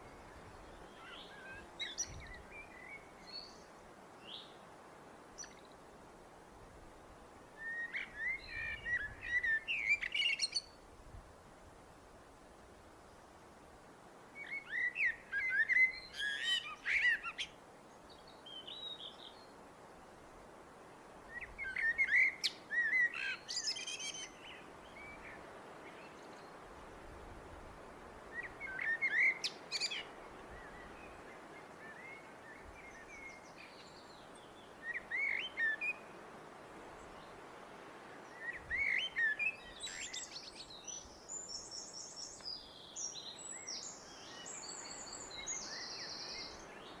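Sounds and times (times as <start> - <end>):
faint background hiss: 0.0 - 47.0
blackbird singing: 14.4 - 17.5, 21.4 - 24.6.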